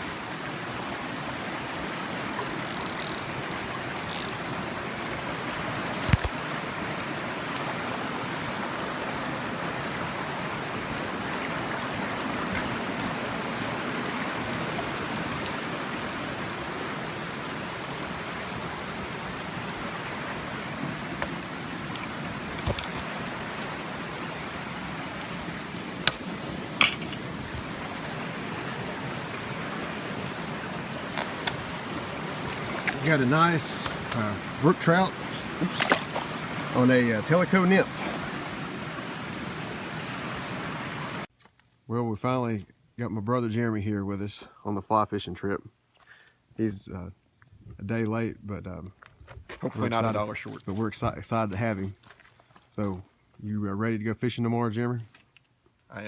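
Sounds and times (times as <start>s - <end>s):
stream flowing: 0.0s - 41.3s.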